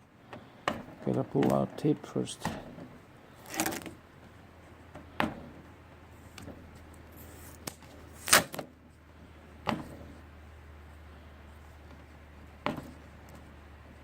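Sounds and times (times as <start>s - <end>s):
tape being pulled off a roll: 3.4s - 4.0s, 6.3s - 8.7s.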